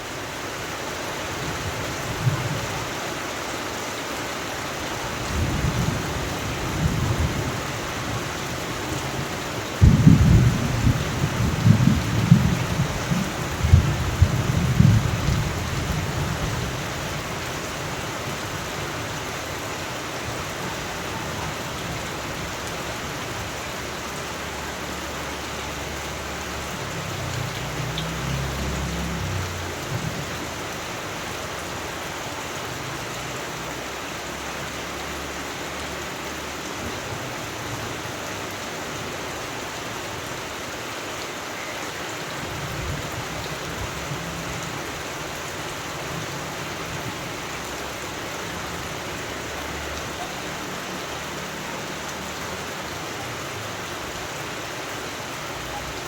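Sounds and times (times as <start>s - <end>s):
steady rain falling: 0.0s - 56.0s
thunder rumbling: 5.3s - 17.4s.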